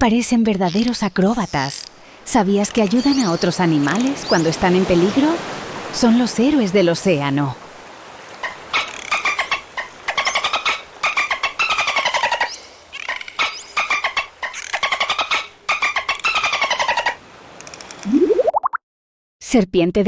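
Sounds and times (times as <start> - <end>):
dolphin clicking and buzzing: 8.4 - 18.2.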